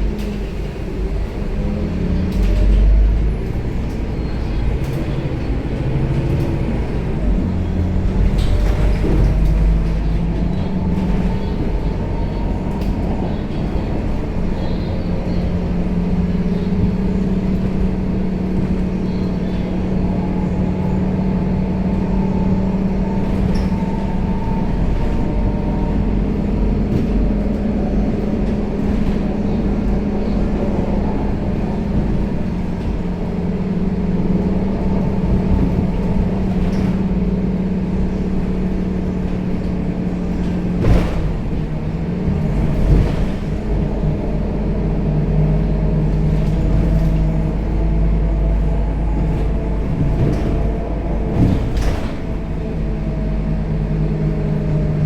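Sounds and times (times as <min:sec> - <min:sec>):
bus diesel engine running: 0:00.0 - 0:55.0
bus body knocks: 0:34.7 - 0:44.8, 0:46.0 - 0:54.3.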